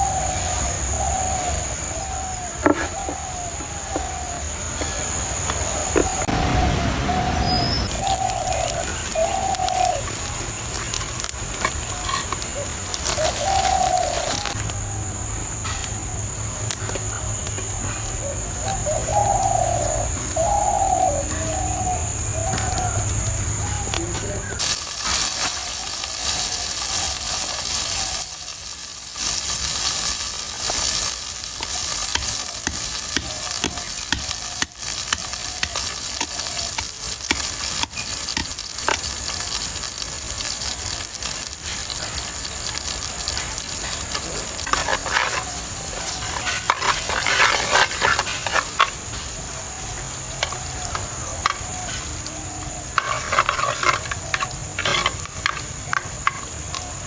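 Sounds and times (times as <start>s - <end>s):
food frying in hot oil: 3.2s - 18.0s, 24.4s - 57.0s
spoon scraping and stirring: 24.6s - 39.1s, 44.6s - 49.0s, 53.0s - 55.7s.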